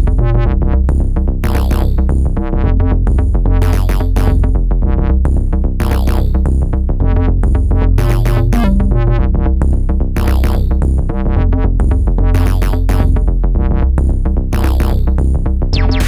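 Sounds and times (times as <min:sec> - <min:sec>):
bass: 0:00.0 - 0:16.0
synthesizer: 0:00.0 - 0:16.0
drum machine beat: 0:08.0 - 0:09.6, 0:15.8 - 0:16.0.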